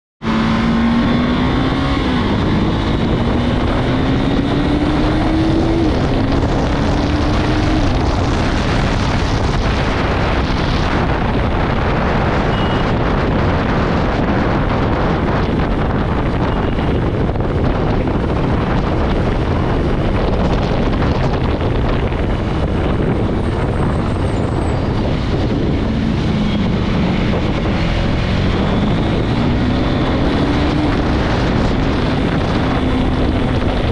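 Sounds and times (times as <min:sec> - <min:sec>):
motorcycle engine accelerating: 0:00.2 - 0:33.9
wind rush on microphone: 0:00.2 - 0:33.9.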